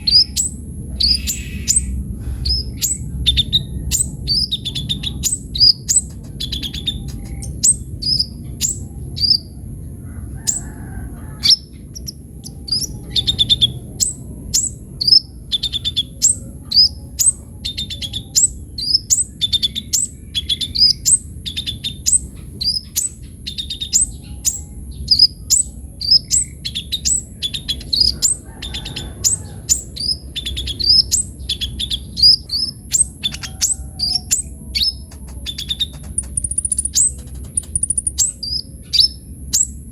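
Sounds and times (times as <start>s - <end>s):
bird chirping high and sharp: 0.0s - 9.5s, 29.7s - 39.8s.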